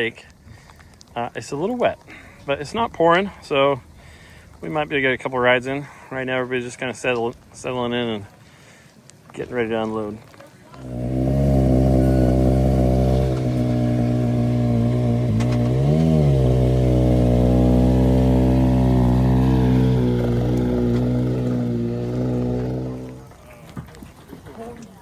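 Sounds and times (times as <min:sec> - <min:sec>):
vehicle engine idling and revving: 0:10.8 - 0:23.4.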